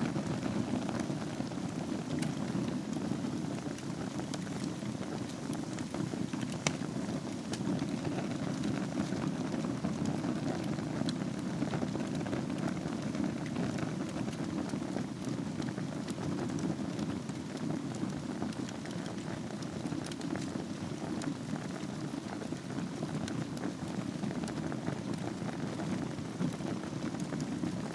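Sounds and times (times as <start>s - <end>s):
fire burning in a fireplace: 0.0s - 27.9s.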